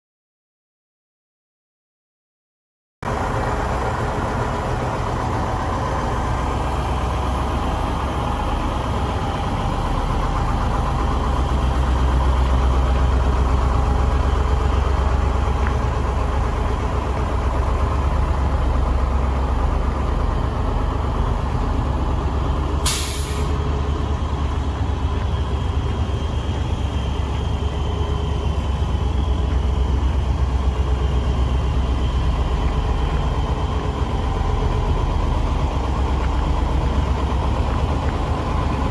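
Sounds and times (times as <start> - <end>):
truck engine rumbling: 3.0 - 38.9
short hiss: 22.8 - 23.6.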